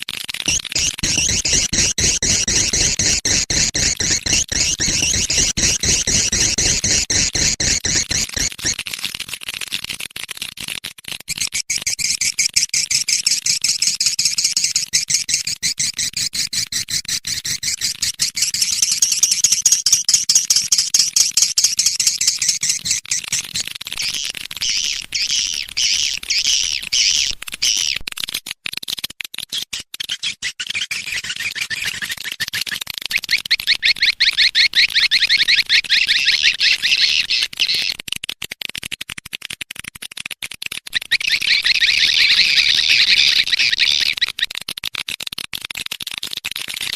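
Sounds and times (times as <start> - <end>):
high-pitched swiftlet chattering: 0.5 - 8.7, 18.4 - 28.0.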